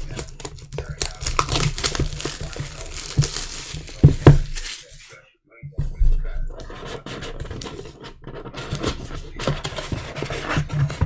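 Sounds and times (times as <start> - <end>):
cards scraping together: 0.0 - 5.1.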